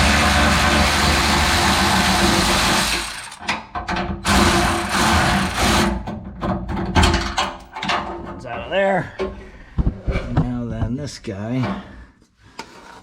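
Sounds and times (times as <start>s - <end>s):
electric ratchet running: 0.0s - 3.4s, 4.3s - 6.0s.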